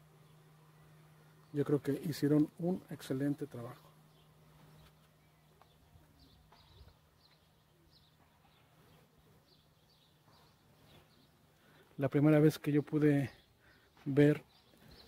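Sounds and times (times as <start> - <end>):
low steady hum: 0.0 - 15.0
faint bird chirps: 3.8 - 11.9.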